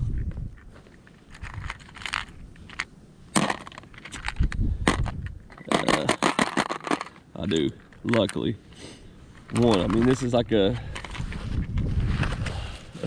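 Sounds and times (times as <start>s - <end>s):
fishing tackle rattling: 0.5s - 8.5s, 9.3s - 11.8s.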